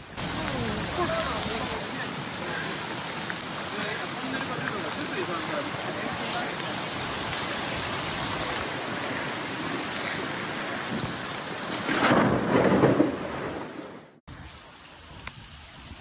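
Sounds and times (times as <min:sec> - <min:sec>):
thunder rumble: 0:00.0 - 0:03.8, 0:04.4 - 0:14.2
heavy rain pouring: 0:00.0 - 0:16.0
light water drips: 0:00.2 - 0:11.9.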